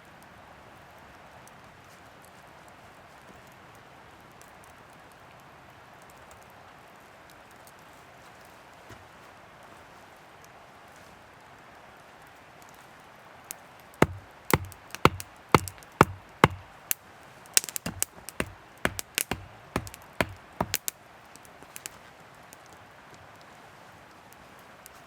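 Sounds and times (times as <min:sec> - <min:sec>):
wood being chopped: 0:14.0 - 0:16.8, 0:17.6 - 0:20.9.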